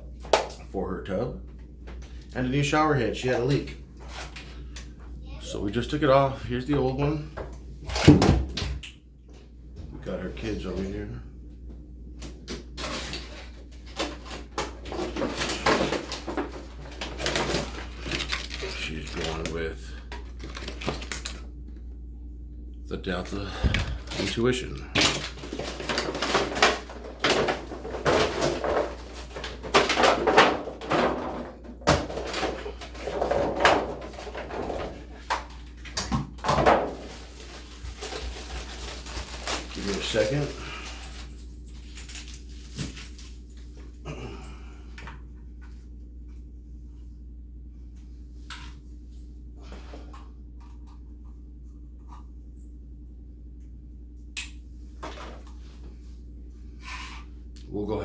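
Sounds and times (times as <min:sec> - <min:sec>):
steady low hum: 0:00.0 - 0:58.0
packaging rustling: 0:12.8 - 0:21.4, 0:36.8 - 0:43.5.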